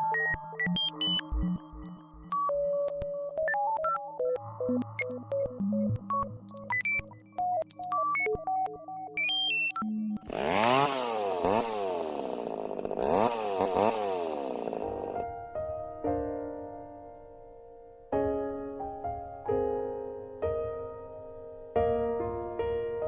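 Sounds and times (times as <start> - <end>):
electronic synth music beeps: 0.0 - 10.8
motorcycle engine revving: 10.2 - 15.2.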